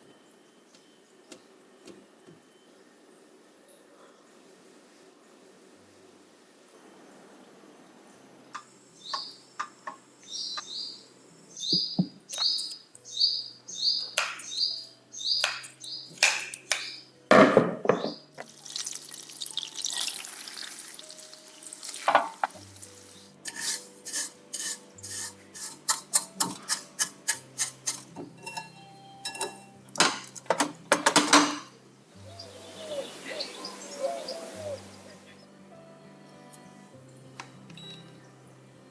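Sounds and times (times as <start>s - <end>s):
utensils tapping against dishes: 22.0s - 22.6s, 23.4s - 31.7s.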